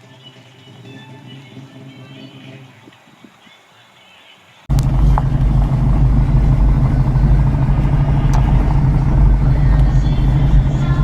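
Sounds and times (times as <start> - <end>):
car engine running while driving: 4.7 - 11.0.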